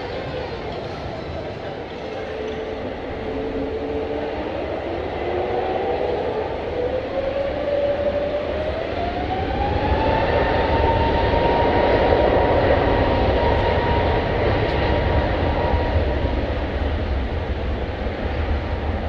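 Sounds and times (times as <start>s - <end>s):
jet engine rumble: 0.0s - 19.0s
jet engine whine: 0.0s - 19.0s.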